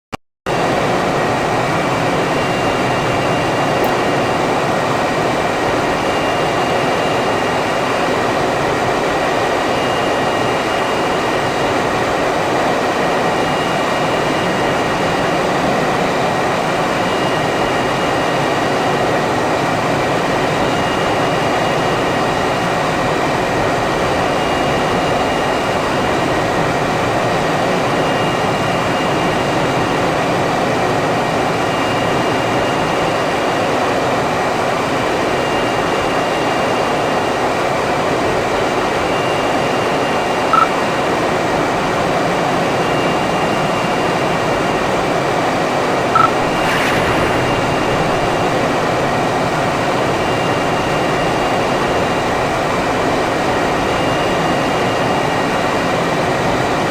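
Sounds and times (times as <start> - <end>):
jet engine noise: 0.5 - 25.6, 45.9 - 52.6.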